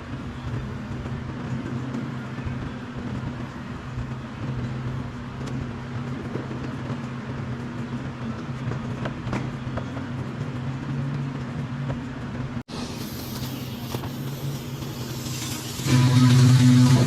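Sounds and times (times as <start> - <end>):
machine hum: 12.7 - 17.0.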